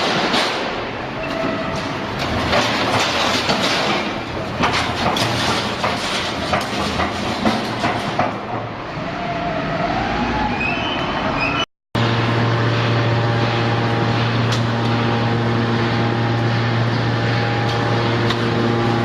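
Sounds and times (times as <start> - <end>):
scrap metal clanking: 0.0 - 8.6
steady machine noise: 12.0 - 19.0.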